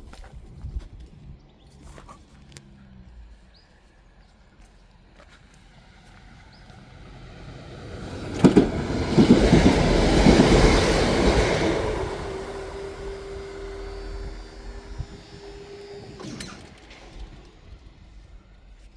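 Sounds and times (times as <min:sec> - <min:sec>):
train passing: 0:04.9 - 0:18.9
steady crossing tone: 0:05.8 - 0:18.9
wheel clicks over rails: 0:08.3 - 0:17.7.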